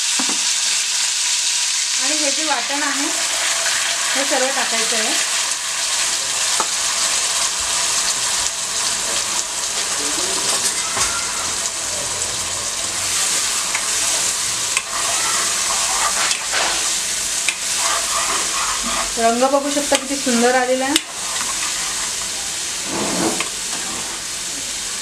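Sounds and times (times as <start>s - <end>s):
paste sizzling in hot oil: 0.0s - 25.0s
spoon stirring: 13.2s - 22.7s.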